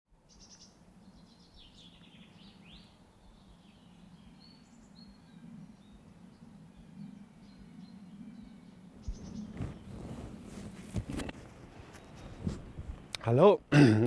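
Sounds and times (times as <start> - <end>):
bird chirps and trills: 0.2 - 10.7.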